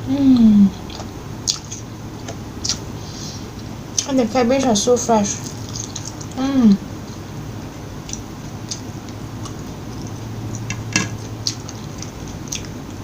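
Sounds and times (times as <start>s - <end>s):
chewing crunches: 5.4s - 6.4s, 8.0s - 13.0s.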